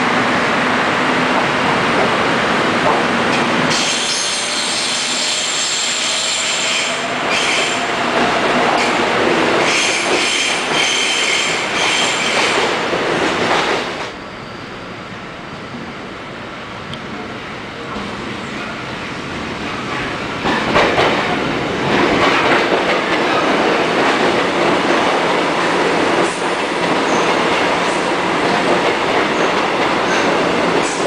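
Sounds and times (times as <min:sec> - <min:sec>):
rumble of train cars: 0:00.0 - 0:31.0
train wheels squealing: 0:03.7 - 0:07.8, 0:09.6 - 0:12.6, 0:14.0 - 0:15.8.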